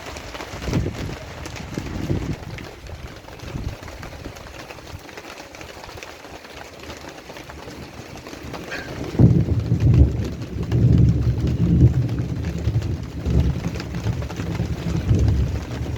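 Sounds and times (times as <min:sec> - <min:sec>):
heavy rain spattering: 0:00.0 - 0:15.9
thunder rumble: 0:00.5 - 0:03.8, 0:08.3 - 0:15.9.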